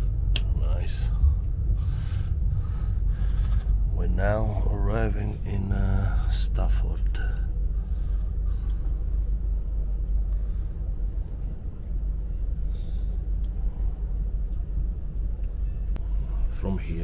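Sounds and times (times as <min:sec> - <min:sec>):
train rumble inside carriage: 0:00.0 - 0:16.9
faint ticks: 0:14.4 - 0:16.0.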